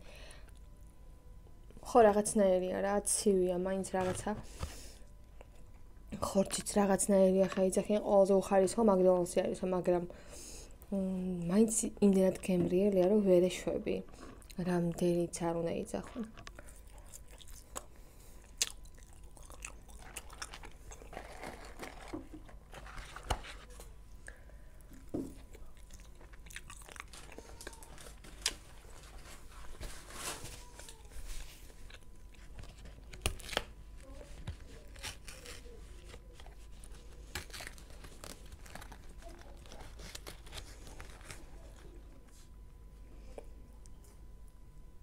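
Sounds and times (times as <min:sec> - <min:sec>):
chewing and crunching fries: 0:14.0 - 0:15.0, 0:15.8 - 0:24.4, 0:25.3 - 0:29.8, 0:30.6 - 0:42.4
paper packaging rustling: 0:20.0 - 0:24.0, 0:27.0 - 0:42.4.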